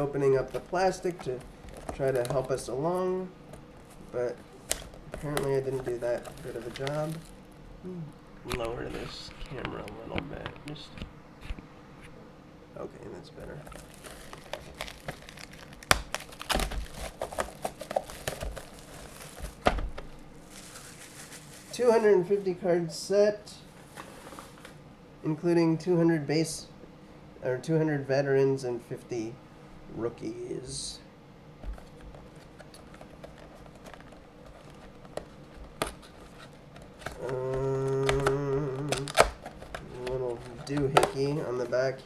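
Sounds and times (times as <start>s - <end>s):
plastic wrap crinkling and tearing: 0.0s - 11.1s, 13.1s - 22.1s, 31.6s - 42.0s
box knocks: 15.9s - 20.2s.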